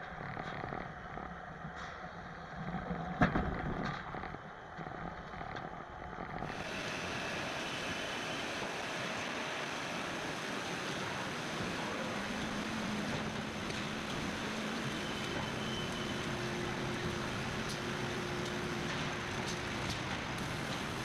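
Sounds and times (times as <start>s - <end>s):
production line machinery din: 6.4s - 21.0s.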